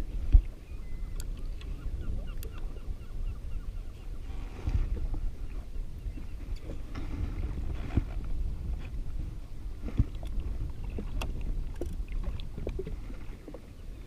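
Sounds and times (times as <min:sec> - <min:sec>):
wind rumbling on microphone: 0:00.0 - 0:14.0
water slapping against hull: 0:04.4 - 0:14.0.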